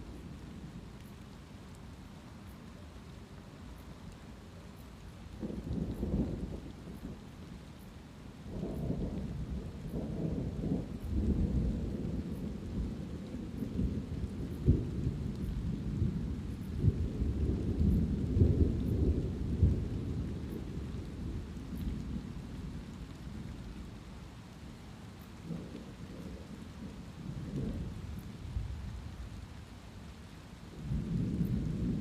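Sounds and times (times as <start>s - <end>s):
light rain: 0.0s - 32.0s
thunder rumbling and cracking: 8.5s - 23.0s, 25.4s - 28.7s, 30.7s - 32.0s.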